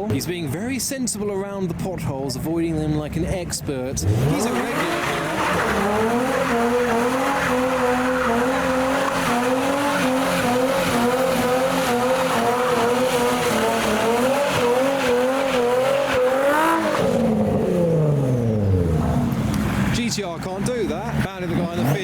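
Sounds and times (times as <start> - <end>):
car engine at high revs: 2.4 - 22.0
tyres squealing: 4.0 - 17.3.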